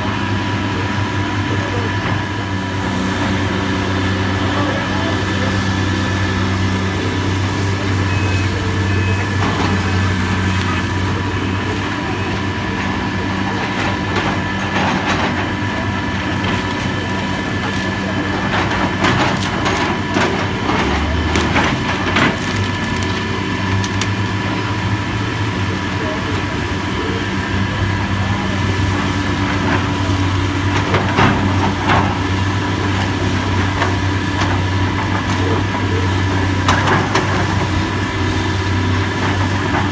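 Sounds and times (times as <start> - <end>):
heavy demolition machinery running: 0.0 - 39.9
wood cracking and crunching: 16.3 - 24.4.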